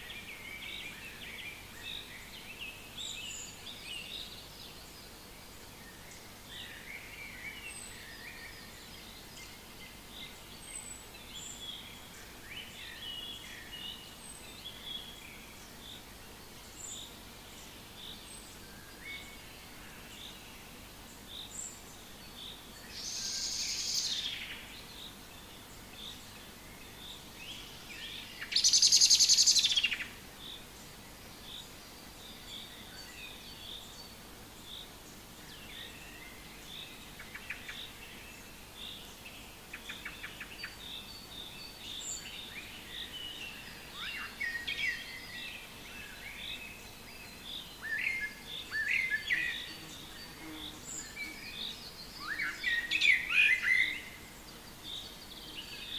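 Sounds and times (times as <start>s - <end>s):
songbirds chirping: 0.0s - 55.9s.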